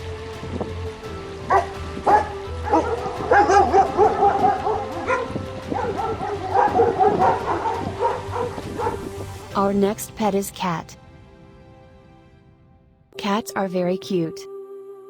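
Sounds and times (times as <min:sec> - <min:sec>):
background music: 0:00.0 - 0:15.0
dog barking: 0:01.5 - 0:09.1.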